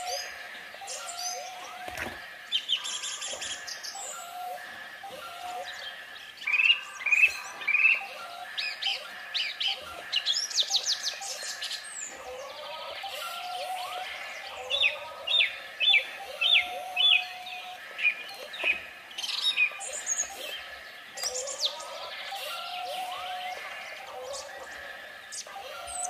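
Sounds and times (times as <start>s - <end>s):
birds chirping and singing: 0.0s - 26.0s.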